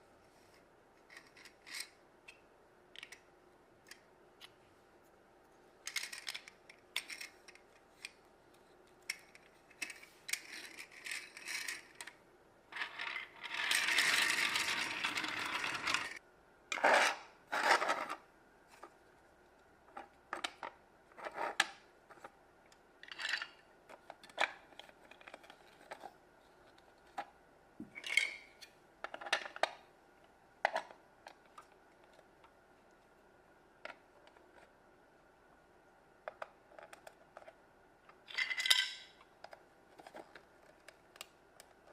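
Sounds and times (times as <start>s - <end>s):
plastic building pieces clicking: 5.8s - 8.2s.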